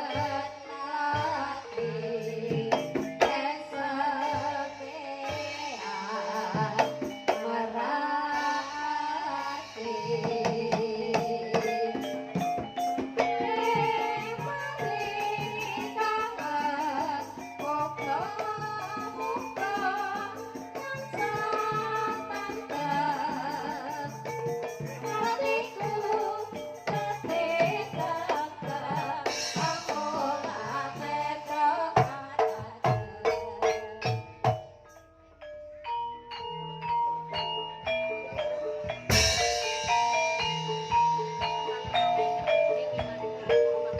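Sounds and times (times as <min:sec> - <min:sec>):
traditional ensemble music: 0:00.0 - 0:43.9
tuned percussion: 0:00.0 - 0:43.9
hand drumming: 0:05.9 - 0:07.6, 0:09.9 - 0:35.0, 0:36.5 - 0:43.9.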